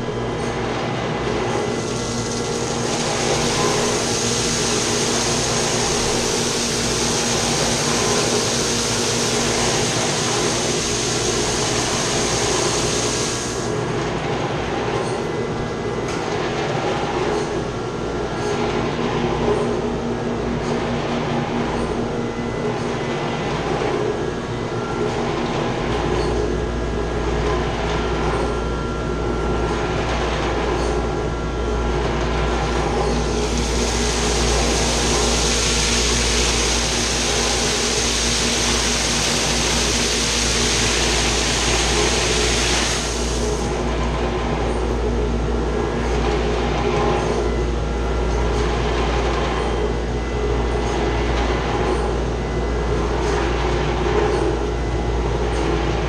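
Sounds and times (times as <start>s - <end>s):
machinery humming: 0.0s - 56.0s
loud hiss: 1.8s - 13.7s, 33.1s - 43.7s.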